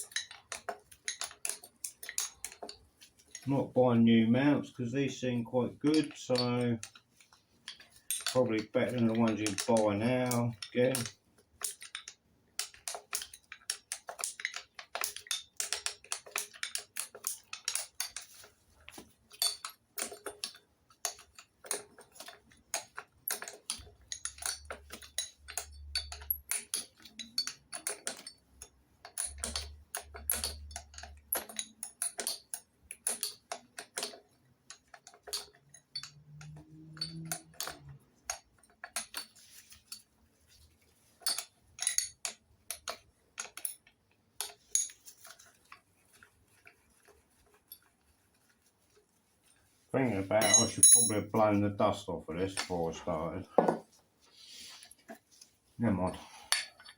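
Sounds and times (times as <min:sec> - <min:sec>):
metallic tool clicks and clinks: 0:00.0 - 0:03.6, 0:07.7 - 0:18.5, 0:19.3 - 0:40.0, 0:41.2 - 0:45.4, 0:50.4 - 0:51.4.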